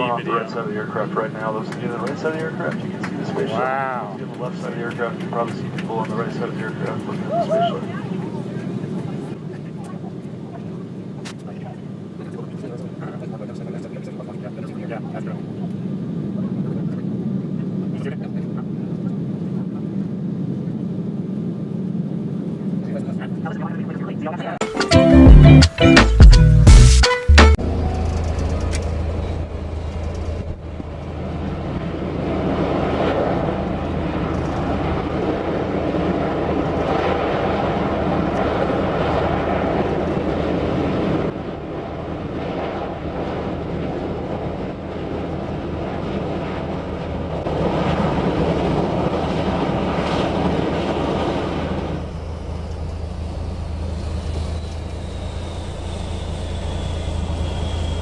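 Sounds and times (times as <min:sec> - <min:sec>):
large vehicle rumbling: 0:24.9 - 0:42.2, 0:43.9 - 0:58.0
faint falling whine: 0:49.6 - 0:58.0.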